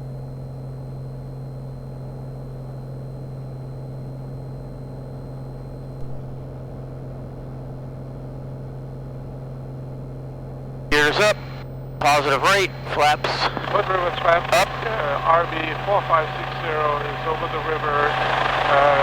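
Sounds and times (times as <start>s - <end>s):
light airplane engine drone: 10.9s - 19.0s.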